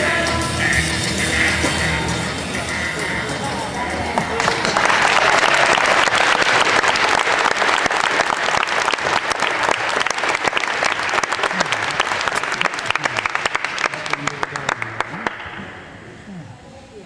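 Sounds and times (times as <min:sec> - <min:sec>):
audience applauding: 0:04.2 - 0:15.8.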